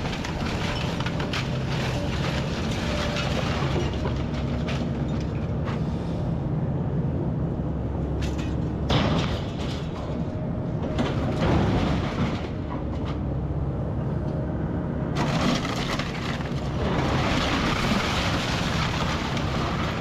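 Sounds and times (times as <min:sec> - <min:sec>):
loud debris crash: 0:00.0 - 0:05.0, 0:08.9 - 0:10.3, 0:11.0 - 0:12.7, 0:15.2 - 0:20.0
debris cracking and knocking: 0:00.0 - 0:05.4, 0:08.2 - 0:13.2, 0:15.2 - 0:20.0.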